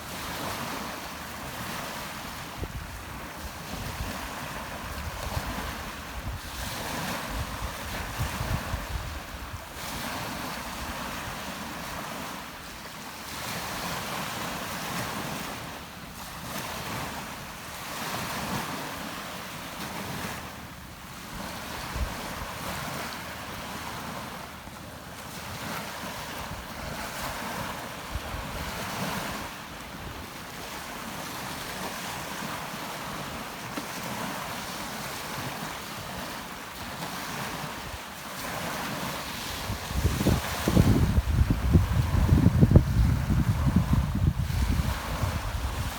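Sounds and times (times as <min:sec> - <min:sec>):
surf breaking on shore: 0:00.0 - 0:45.9
wind buffeting microphone: 0:01.6 - 0:11.6, 0:26.3 - 0:30.3, 0:39.3 - 0:45.9.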